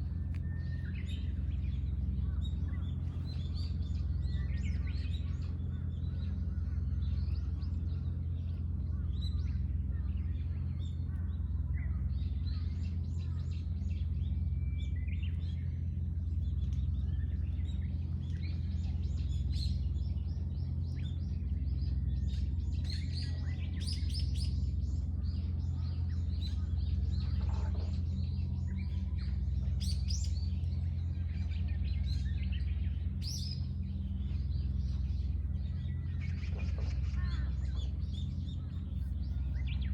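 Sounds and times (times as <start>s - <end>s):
low hum: 0.0s - 39.9s
songbirds chirping and singing: 0.0s - 39.9s.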